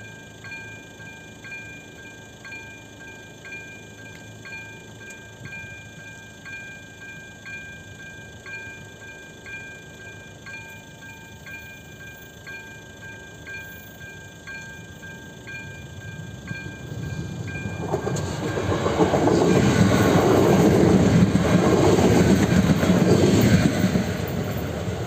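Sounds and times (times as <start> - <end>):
level crossing warning bell: 0.0 - 25.0
train passing with wheel clatter: 0.0 - 25.0.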